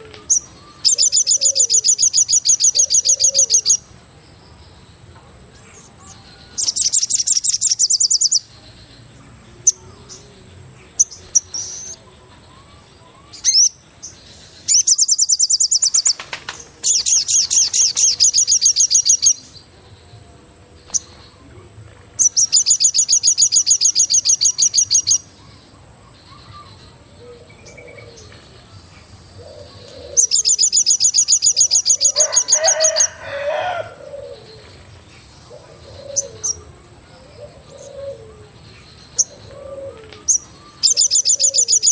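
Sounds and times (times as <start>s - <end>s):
bird high-pitched trills: 0.0s - 3.9s, 6.0s - 8.8s, 9.6s - 19.6s, 22.2s - 28.3s, 29.4s - 34.6s, 37.4s - 41.9s.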